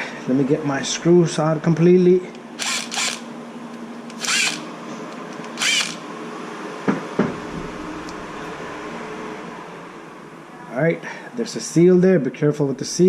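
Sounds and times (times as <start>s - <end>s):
power screwdriver whirring: 2.6s - 3.3s, 4.1s - 4.7s, 5.3s - 6.0s.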